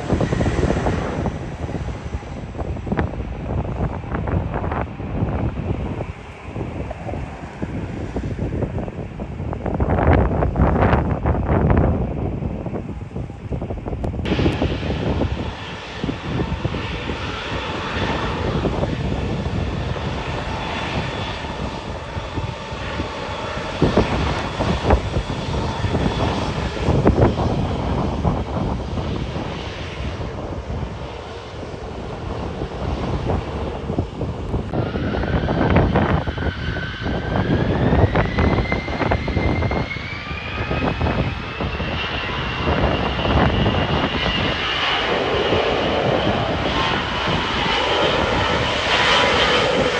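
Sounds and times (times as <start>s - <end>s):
airliner engines running: 0.0s - 49.9s
wind buffeting microphone: 0.0s - 49.9s.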